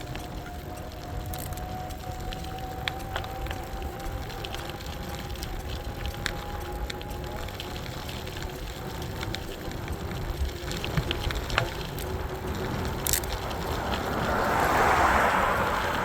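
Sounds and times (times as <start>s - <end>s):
small clicks: 0.0s - 15.9s
e-bike riding rumble: 0.0s - 16.0s
rushing sound: 13.2s - 16.0s.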